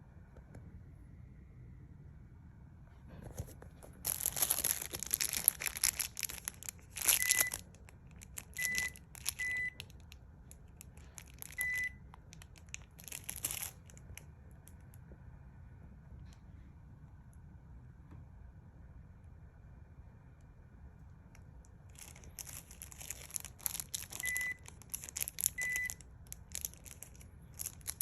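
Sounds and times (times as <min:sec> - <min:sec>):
plastic packaging crinkling: 0:03.3 - 0:14.8, 0:21.9 - 0:28.0.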